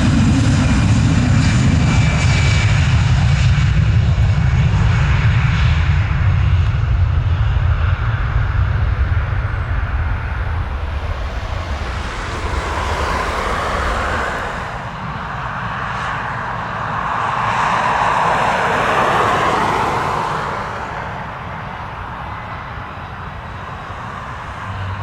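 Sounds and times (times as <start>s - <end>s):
airliner engines roaring: 0.0s - 25.0s.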